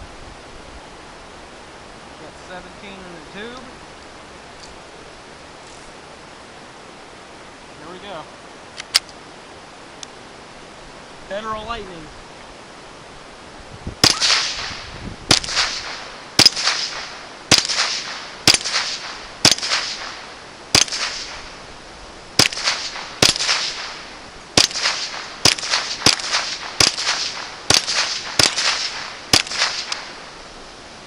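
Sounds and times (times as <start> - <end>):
rifle shots with echo: 14.0 - 21.6, 22.4 - 30.3.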